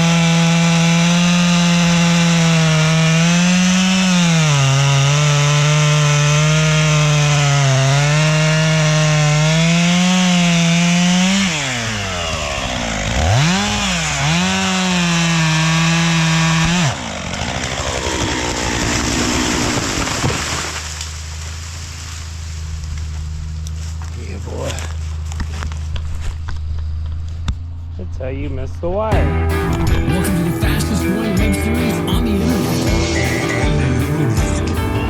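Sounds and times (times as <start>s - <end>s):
chainsaw cutting wood: 0.0s - 22.2s, 29.5s - 35.0s
wood snapping: 0.0s - 27.6s.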